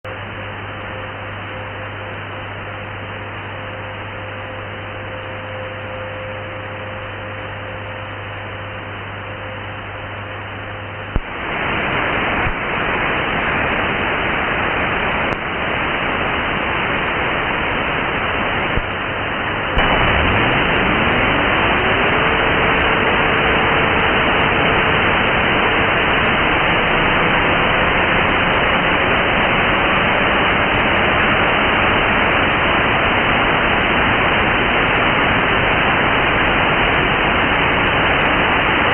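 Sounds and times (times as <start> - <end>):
loud interference noise: 0.0 - 38.9
radio hiss: 11.0 - 38.9.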